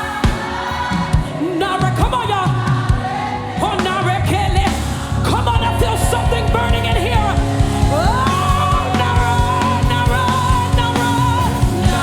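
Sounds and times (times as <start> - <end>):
gospel band playing: 0.0 - 12.0
person singing with vibrato: 0.0 - 12.0.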